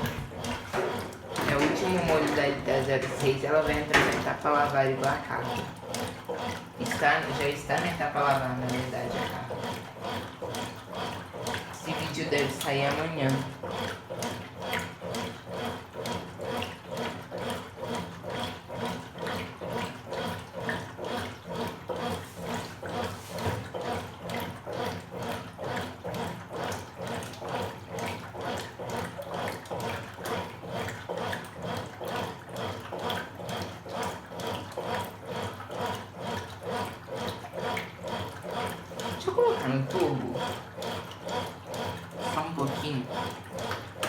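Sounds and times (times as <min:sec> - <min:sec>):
washing machine motor hum: 0:00.0 - 0:44.0
water sloshing in washing machine: 0:00.0 - 0:44.0.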